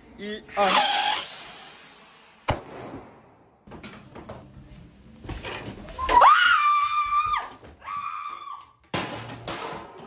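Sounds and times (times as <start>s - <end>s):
woman screaming: 6.0s - 8.6s.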